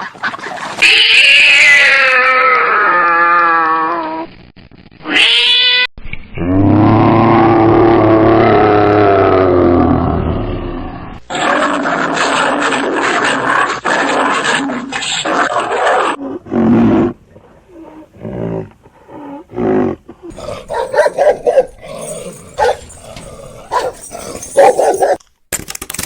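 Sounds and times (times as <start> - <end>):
lion roaring: 19.4 - 25.1.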